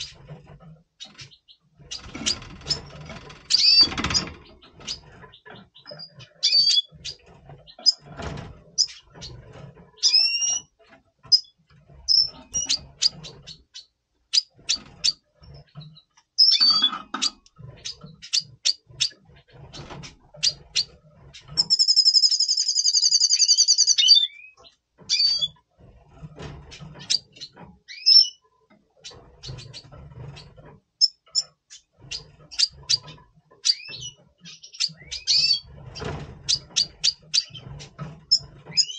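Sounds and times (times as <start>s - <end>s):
birds chirping: 0.0s - 38.9s
soft rustles and knocks: 24.6s - 34.5s, 35.6s - 38.9s.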